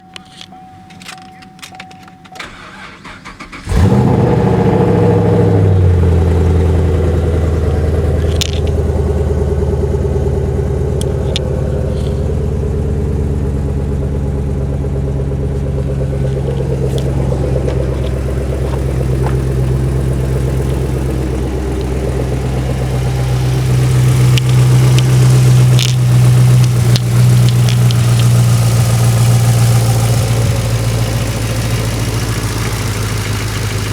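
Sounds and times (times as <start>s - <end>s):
car engine starting and idling: 0.0s - 33.9s.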